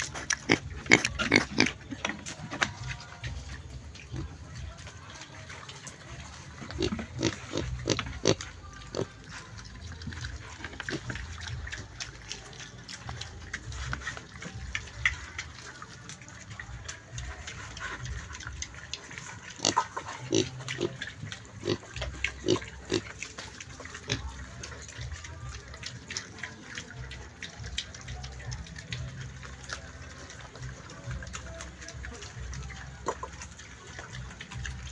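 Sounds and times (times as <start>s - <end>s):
pig making sharp calls: 0.0s - 2.0s.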